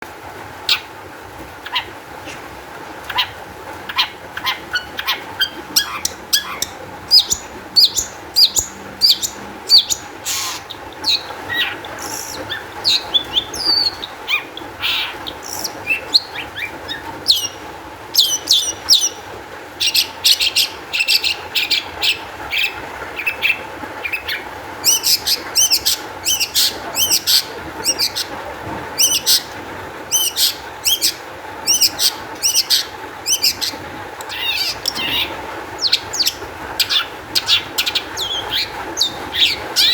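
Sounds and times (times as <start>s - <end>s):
shrike singing: 3.9s - 17.6s.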